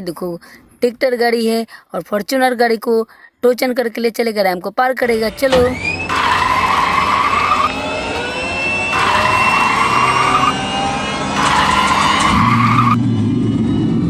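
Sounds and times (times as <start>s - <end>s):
cartoon car engine running: 5.0s - 13.0s
tire screech: 5.1s - 14.0s
low rumble: 12.6s - 14.0s.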